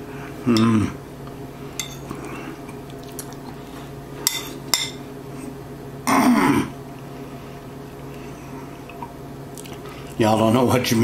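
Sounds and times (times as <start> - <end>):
man humming mmm: 6.1 - 6.8.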